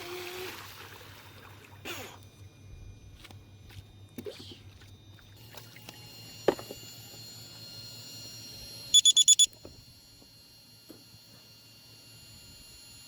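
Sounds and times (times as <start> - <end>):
faint steady high whine: 0.0 - 13.0
rapid high electronic beeps: 8.9 - 9.5.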